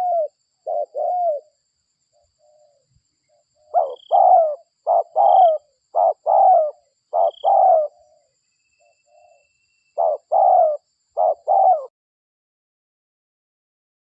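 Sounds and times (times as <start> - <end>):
dove cooing: 0.0 - 1.6, 3.6 - 8.3, 10.0 - 11.9.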